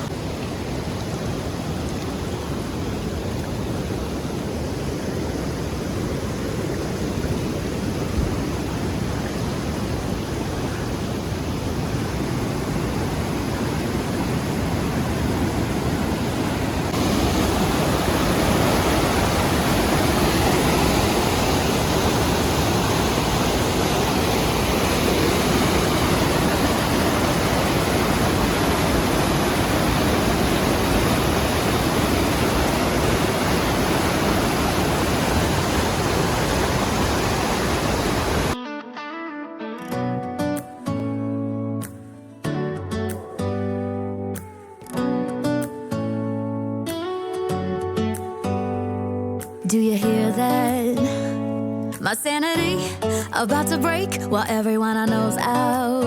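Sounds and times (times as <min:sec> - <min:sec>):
waterfall rushing: 0:00.0 - 0:38.6.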